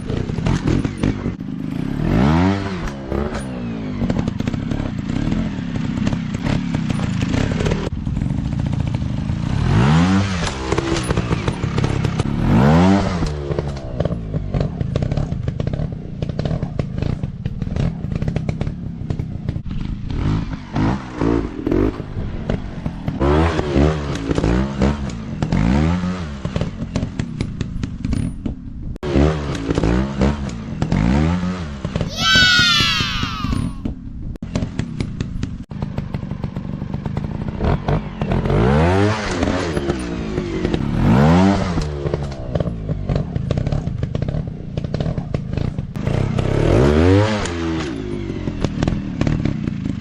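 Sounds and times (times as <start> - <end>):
dirt bike engine revving: 0.0 - 13.7.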